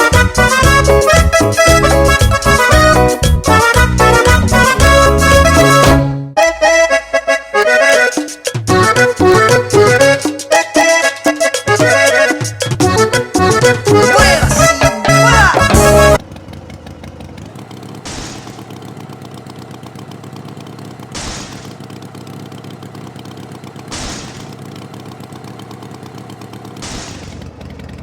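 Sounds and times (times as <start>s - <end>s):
music: 0.0s - 16.2s
tractor engine idling: 12.7s - 28.0s.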